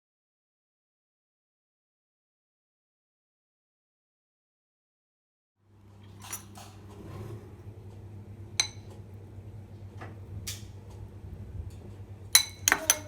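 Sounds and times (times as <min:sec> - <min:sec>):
steady low hum: 0:05.7 - 0:13.0
glass and dishware clinking: 0:06.2 - 0:06.7, 0:08.6 - 0:08.9, 0:12.4 - 0:13.0.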